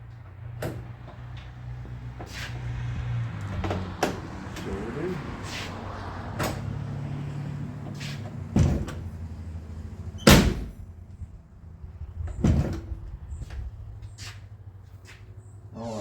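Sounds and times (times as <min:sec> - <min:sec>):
car door slams: 0:08.5 - 0:09.1, 0:10.2 - 0:10.9.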